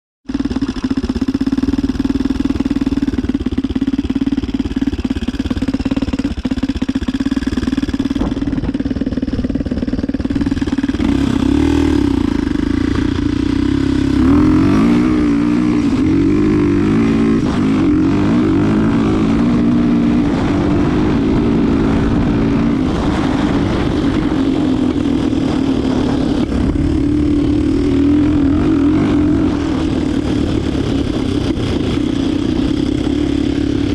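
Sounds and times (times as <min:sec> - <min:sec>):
motorcycle engine revving: 0:00.2 - 0:33.9.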